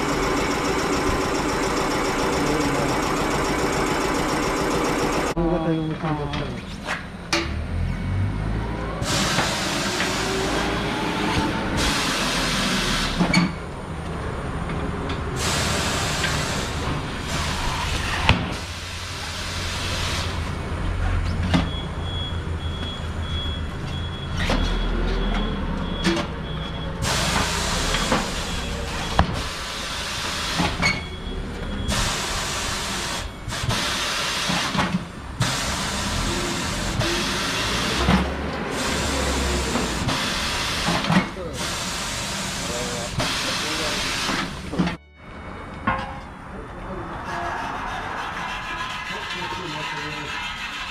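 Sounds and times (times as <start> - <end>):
compressed air hissing: 9.0 - 13.4, 15.4 - 20.5, 27.0 - 30.9, 31.9 - 44.9.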